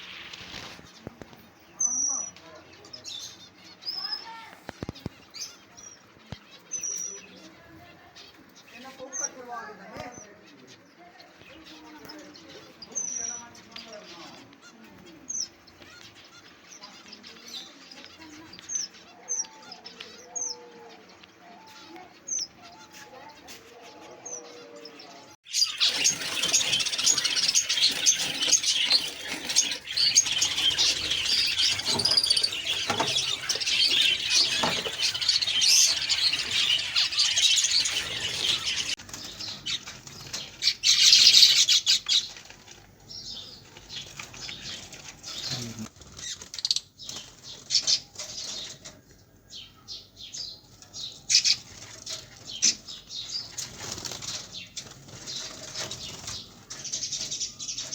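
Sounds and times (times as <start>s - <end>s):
wings fluttering: 0.0s - 1.4s, 25.5s - 48.9s, 51.3s - 57.9s
birds chirping and twittering: 0.0s - 57.9s.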